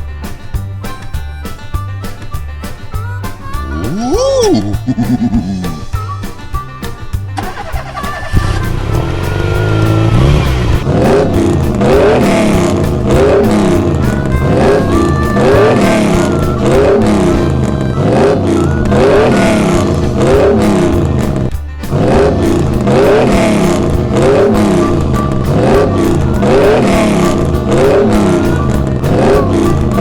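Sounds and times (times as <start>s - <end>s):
car engine revving: 7.4s - 30.0s.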